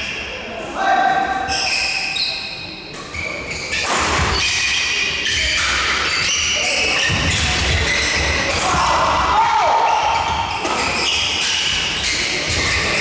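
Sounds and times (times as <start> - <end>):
echoing hall background: 0.0 - 13.0
shoes squeaking on court floor: 1.3 - 8.6, 9.8 - 13.0.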